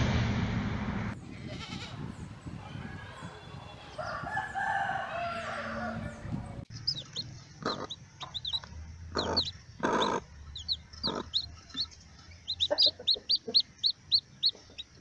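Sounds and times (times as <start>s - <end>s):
chicks peeping: 5.4s - 15.0s
hen clucking: 6.7s - 15.0s.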